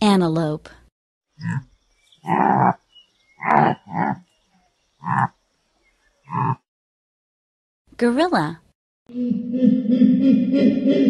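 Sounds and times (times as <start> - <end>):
antelope calling: 1.4 - 5.3.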